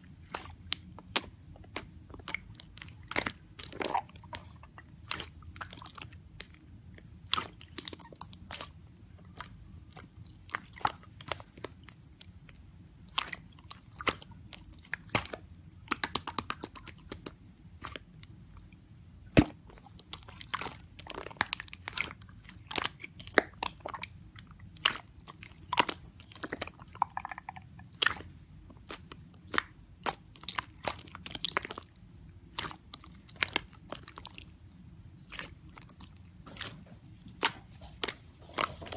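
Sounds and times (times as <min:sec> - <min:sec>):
faint low hum: 0:00.0 - 0:38.9
slime clicking and popping: 0:13.1 - 0:18.0, 0:24.7 - 0:31.9.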